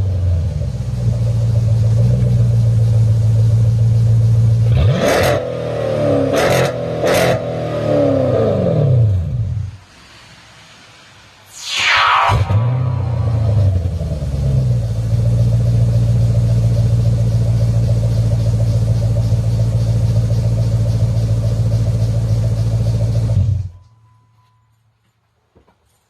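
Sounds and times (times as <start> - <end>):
car engine idling: 0.0 - 6.3, 13.0 - 23.8.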